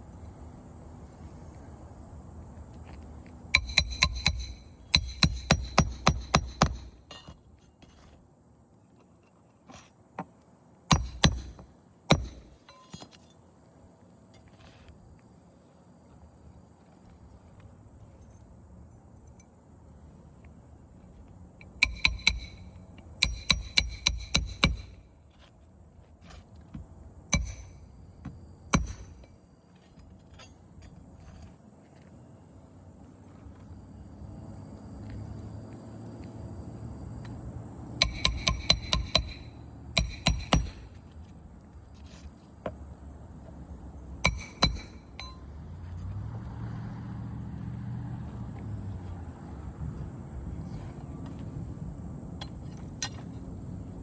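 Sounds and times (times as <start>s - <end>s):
hammer striking roofing nails: 3.6s - 7.0s, 10.9s - 13.0s, 21.8s - 25.0s, 27.3s - 27.8s, 28.7s - 29.2s, 38.0s - 41.0s, 44.2s - 45.4s.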